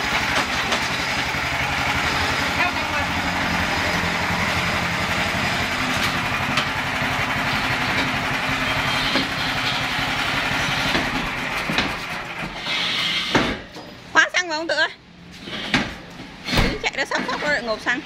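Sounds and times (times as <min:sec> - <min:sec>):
flail mower engine running: 0:00.0 - 0:13.2.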